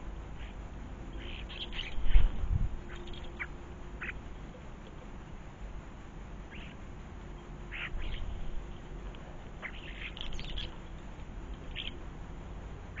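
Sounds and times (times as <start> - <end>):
low steady rumble: 0.0 - 13.0
birds giving short calls: 1.2 - 4.2, 6.5 - 6.8, 7.7 - 8.7, 9.6 - 10.9, 11.6 - 12.0.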